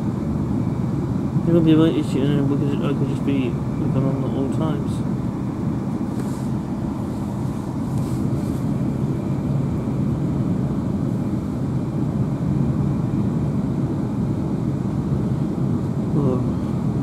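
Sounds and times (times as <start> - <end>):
train rumble from inside carriage: 0.0 - 17.0.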